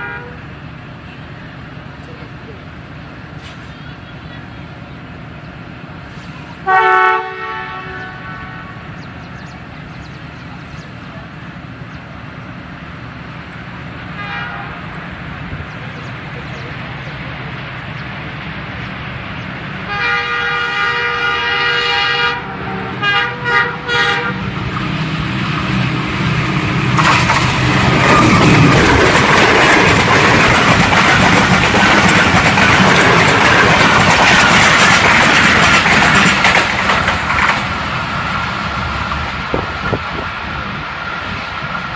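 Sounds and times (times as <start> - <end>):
train horn blasts: 0.0 - 0.5, 6.6 - 9.0, 14.1 - 14.9, 19.8 - 24.6
train rumble and rattle: 0.0 - 41.9.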